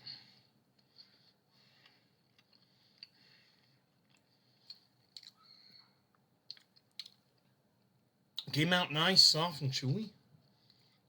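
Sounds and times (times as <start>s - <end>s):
person chewing: 0.4s - 7.5s.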